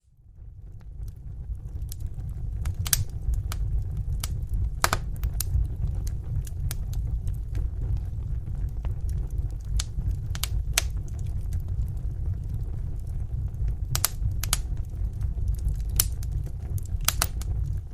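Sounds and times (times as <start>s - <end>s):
fire crackling and popping: 0.0s - 17.9s.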